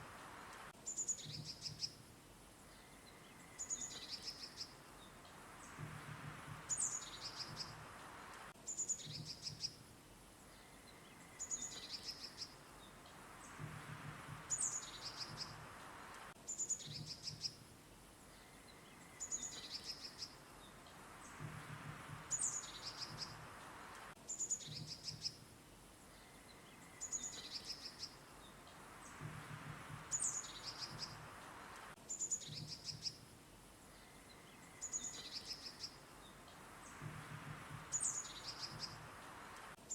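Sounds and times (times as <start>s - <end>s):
soft background hiss: 0.0s - 39.9s
songbirds chirping: 0.0s - 39.9s
low pulsing bird calls: 2.6s - 7.9s, 8.7s - 9.8s, 10.4s - 15.8s, 21.2s - 23.6s, 24.3s - 31.4s, 32.1s - 39.2s.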